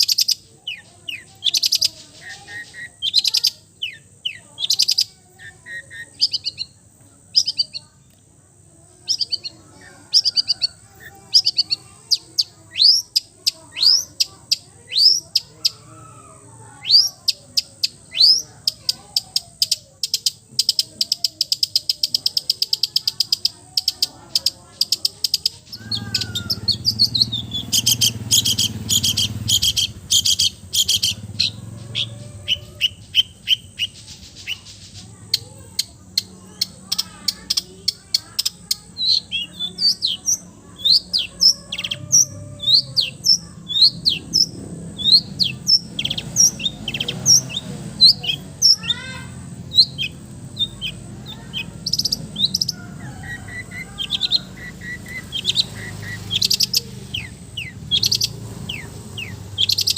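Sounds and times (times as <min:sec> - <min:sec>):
sharp sliding bird chirps: 0:00.0 - 0:08.0, 0:09.1 - 0:15.8, 0:21.7 - 0:35.5, 0:36.6 - 0:59.9
songbirds trilling: 0:00.0 - 0:59.9.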